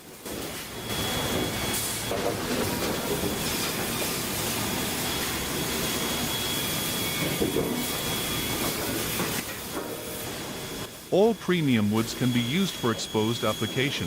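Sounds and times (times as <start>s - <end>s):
faint high whine: 10.2s - 14.0s.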